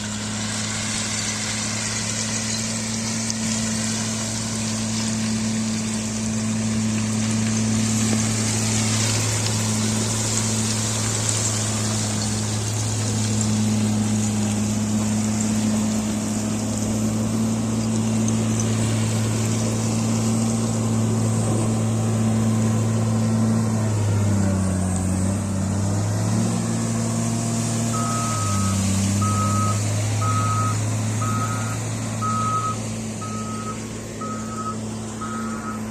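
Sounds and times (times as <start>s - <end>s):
diesel engine running: 0.0s - 35.9s
reversing alarm beeping: 27.9s - 35.9s.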